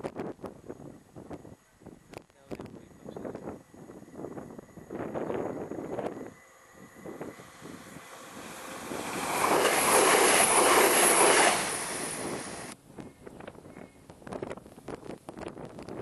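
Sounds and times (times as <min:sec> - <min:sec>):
train passing at speed: 0:02.9 - 0:12.8.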